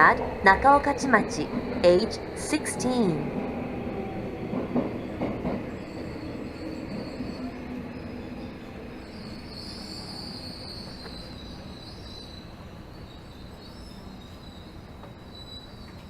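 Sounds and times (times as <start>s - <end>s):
subway train running rumble: 0.0s - 16.0s
wheel and brake squeal: 5.6s - 16.0s.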